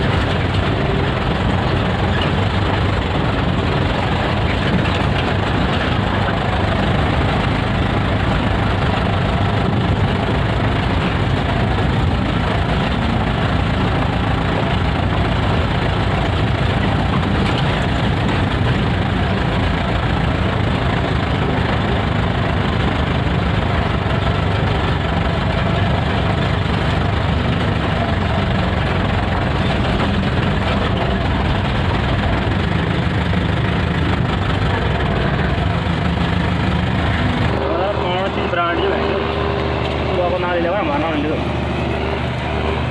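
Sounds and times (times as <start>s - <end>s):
engine drone: 0.0s - 42.9s.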